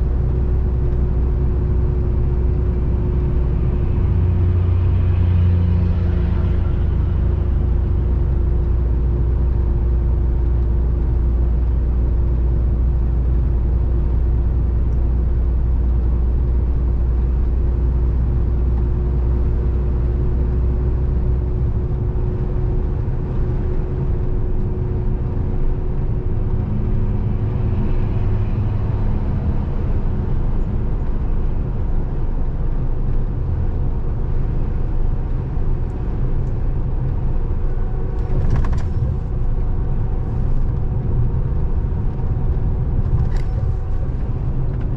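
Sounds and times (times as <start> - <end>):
road noise: 0.0 - 44.9
truck diesel engine drone: 0.0 - 44.9.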